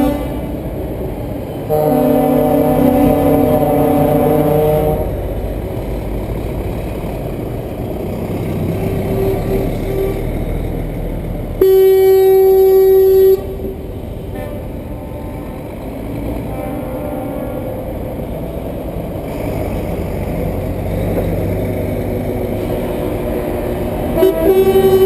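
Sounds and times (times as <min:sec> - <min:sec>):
loud truck horn blast: 0:00.0 - 0:00.8, 0:01.6 - 0:05.4, 0:08.7 - 0:10.6, 0:11.6 - 0:18.2, 0:22.6 - 0:25.0
truck engines rumbling: 0:00.0 - 0:25.0
faint horn toot: 0:01.7 - 0:05.2, 0:11.6 - 0:13.6.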